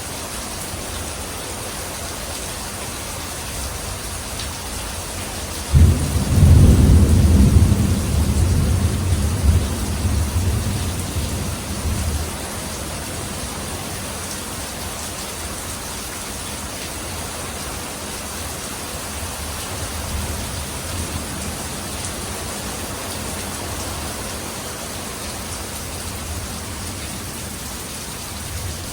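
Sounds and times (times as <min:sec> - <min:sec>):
steady rain falling: 0:00.0 - 0:28.9
thunder clap and rumble: 0:05.7 - 0:13.5.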